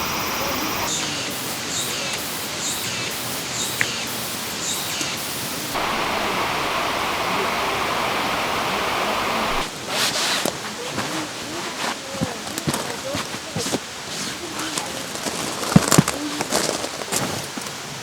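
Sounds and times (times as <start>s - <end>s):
faint high chirps: 0.0s - 9.7s
water rushing over rocks: 0.0s - 9.9s.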